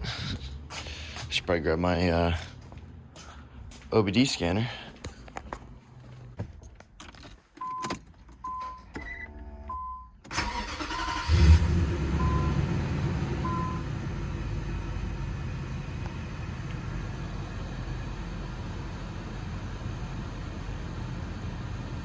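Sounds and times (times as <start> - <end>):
car engine starting and idling: 7.0 - 22.0.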